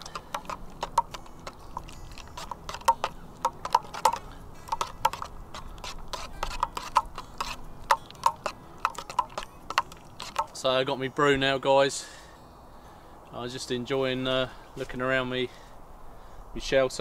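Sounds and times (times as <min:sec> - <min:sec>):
rapid sharp clicks and taps: 0:00.0 - 0:10.6.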